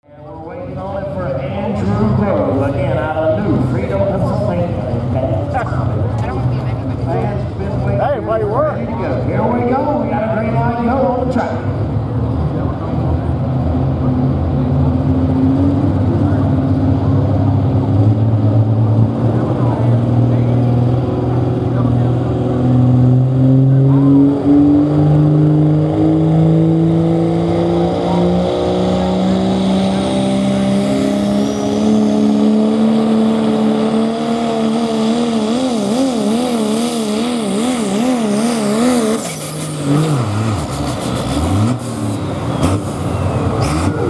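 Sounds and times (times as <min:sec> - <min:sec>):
diesel truck engine under load: 0:00.0 - 0:44.0.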